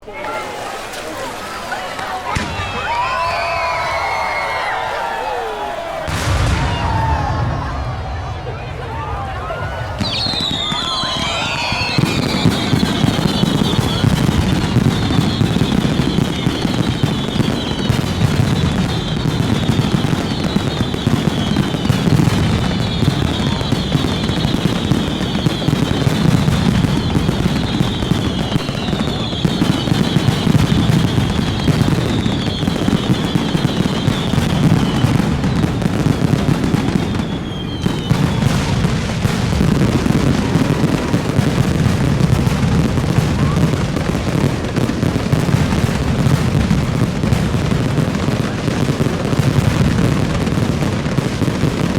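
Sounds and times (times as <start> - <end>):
fireworks bangs and crackling: 0.0 - 51.9
whistle falling in pitch: 10.0 - 14.2.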